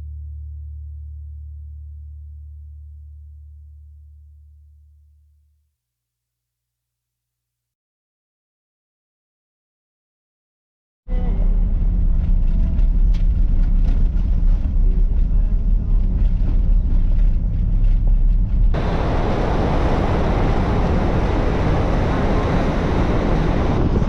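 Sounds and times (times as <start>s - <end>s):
vehicle driving rumble: 11.1s - 24.0s
loud rushing noise: 18.8s - 24.0s.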